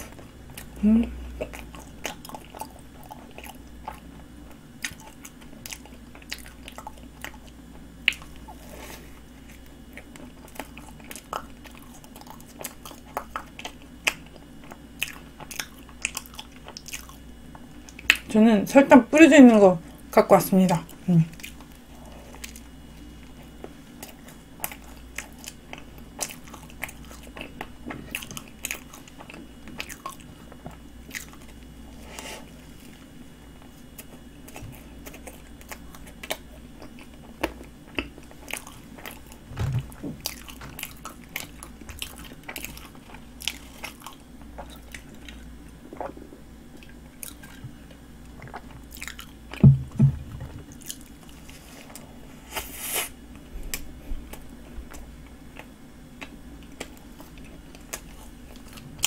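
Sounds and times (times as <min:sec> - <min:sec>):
steady low hum: 0:00.0 - 0:59.0
low thumps: 0:49.6 - 0:50.7.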